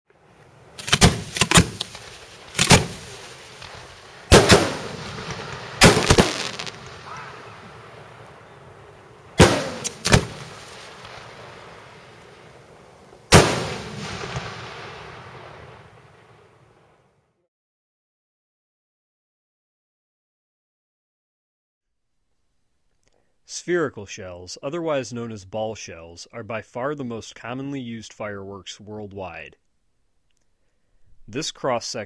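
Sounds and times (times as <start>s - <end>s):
rolling echo: 0.1s - 17.1s
firework shells bursting: 0.3s - 16.3s.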